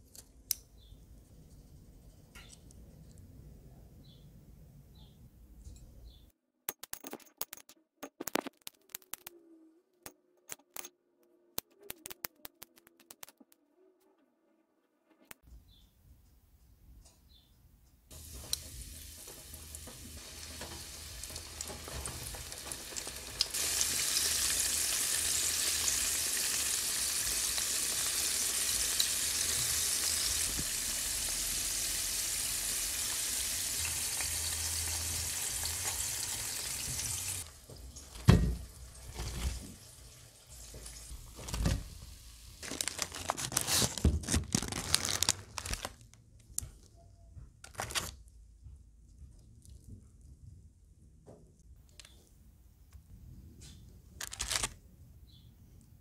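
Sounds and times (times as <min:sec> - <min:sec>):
food deep-frying in hot oil: 0:18.1 - 0:42.6.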